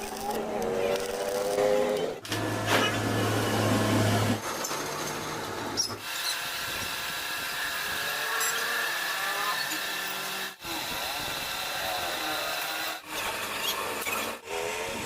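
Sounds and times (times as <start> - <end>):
power tools running: 0.0 - 15.0
high power tool whine: 6.0 - 15.0.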